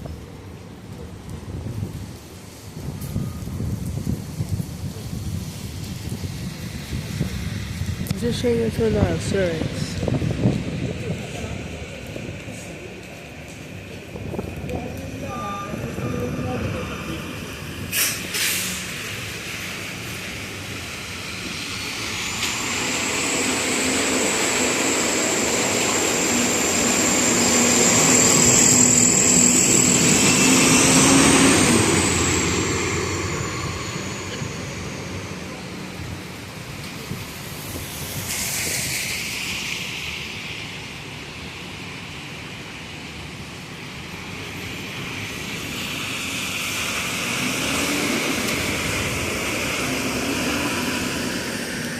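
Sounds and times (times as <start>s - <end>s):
subway train passing: 0.0s - 51.9s
short hiss of air: 17.9s - 19.0s, 38.0s - 39.9s
high wheel squeal: 21.8s - 35.4s.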